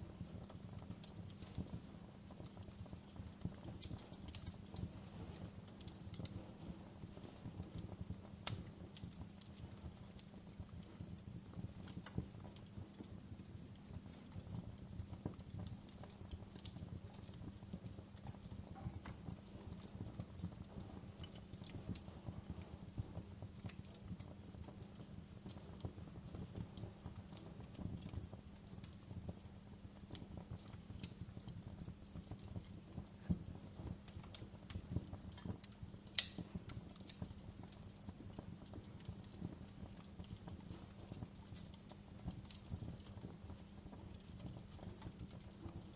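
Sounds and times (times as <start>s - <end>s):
wood fire crackling: 0.0s - 45.9s.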